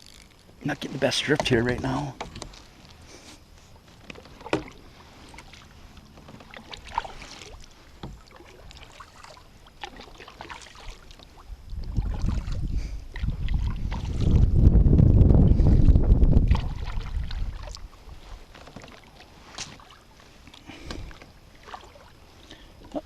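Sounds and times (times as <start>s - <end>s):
wind rumble on microphone: 11.4s - 18.5s.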